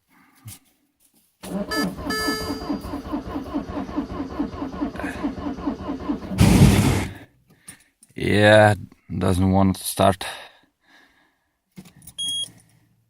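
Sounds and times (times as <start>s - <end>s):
diesel engine cranking: 1.4s - 7.2s.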